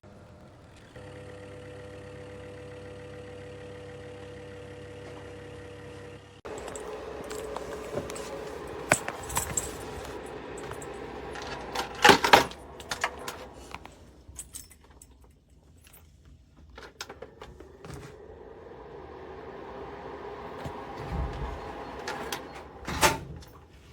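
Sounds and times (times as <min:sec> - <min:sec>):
heater fan humming: 0:06.5 - 0:14.4, 0:16.8 - 0:23.9.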